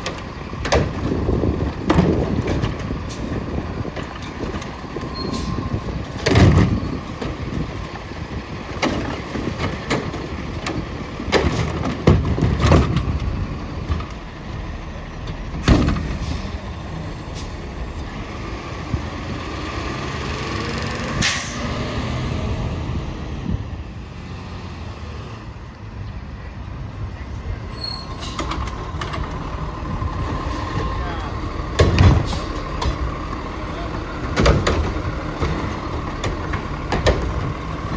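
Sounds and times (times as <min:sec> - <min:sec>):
garbage truck engine running: 0:00.0 - 0:24.0, 0:26.6 - 0:37.9
loud bangs and knocks: 0:28.4 - 0:37.9.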